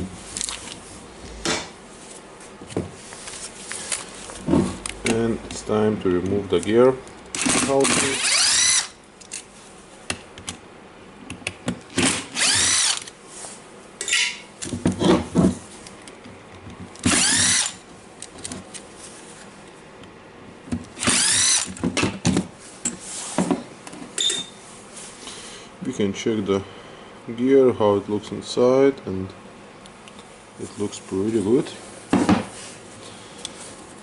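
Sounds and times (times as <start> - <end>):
power drill spinning: 7.4 - 9.0, 12.0 - 13.1, 17.1 - 17.8, 21.0 - 21.7.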